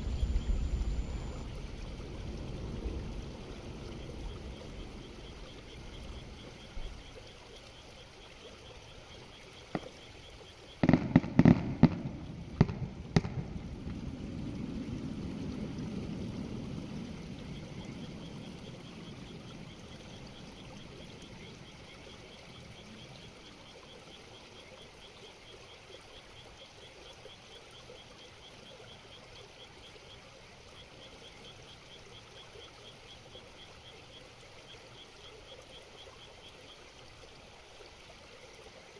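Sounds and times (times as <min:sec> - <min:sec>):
faint high chirping: 0:00.0 - 0:01.7
fireworks bursting: 0:10.8 - 0:14.0.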